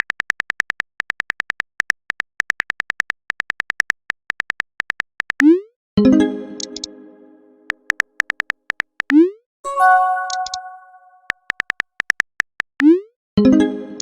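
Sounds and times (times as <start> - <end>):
message notification chime: 9.7 - 11.2.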